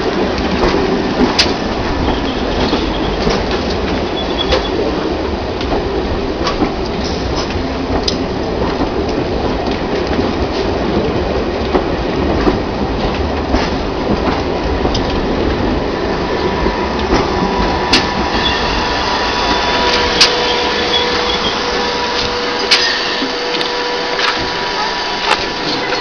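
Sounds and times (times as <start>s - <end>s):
train wheels rumbling on rail: 0.0s - 26.0s
low squeal tone: 18.3s - 24.7s.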